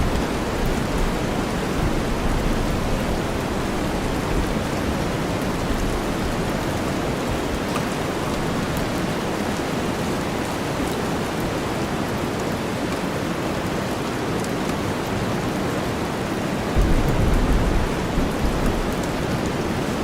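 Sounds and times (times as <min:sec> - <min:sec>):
steady rainfall: 0:00.0 - 0:20.0
thunder rumble: 0:16.8 - 0:20.0
white noise: 0:16.8 - 0:20.0.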